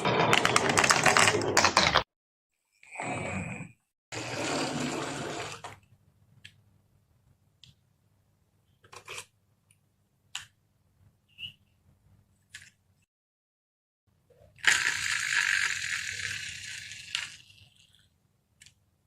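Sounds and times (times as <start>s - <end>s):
marbles rolling rattle: 0.0s - 1.9s, 14.7s - 17.6s
marbles clicking on track: 14.6s - 17.5s.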